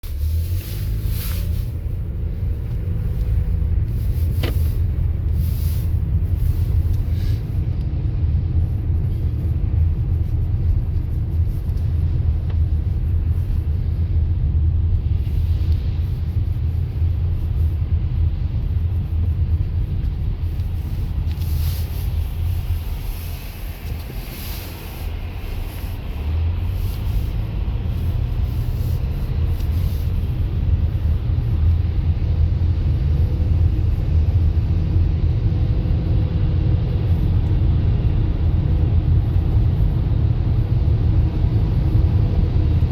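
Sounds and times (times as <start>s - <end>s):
road and engine rumble: 0.0s - 42.9s
tyre hisses: 21.4s - 26.1s.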